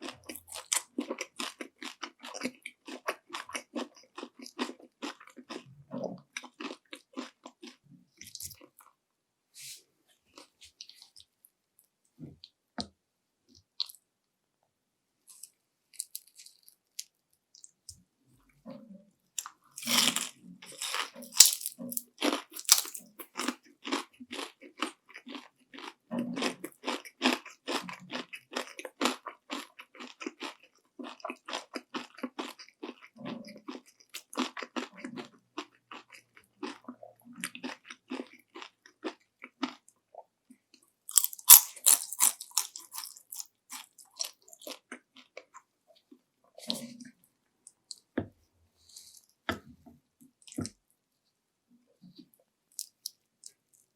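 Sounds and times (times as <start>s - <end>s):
crunchy chewing: 0.0s - 8.9s, 19.4s - 39.8s, 41.1s - 47.1s
crunching bite into fried food: 19.4s - 31.2s, 41.1s - 44.8s.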